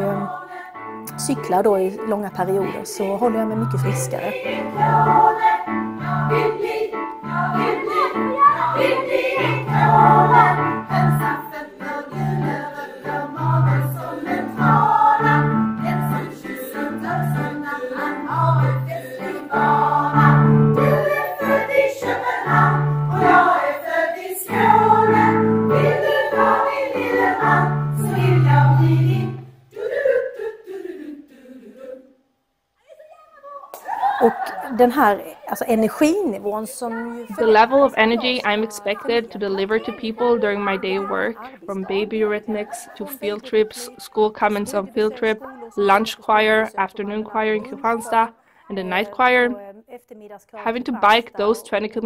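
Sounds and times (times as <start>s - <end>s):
choir singing: 0.0s - 32.2s, 33.8s - 48.4s.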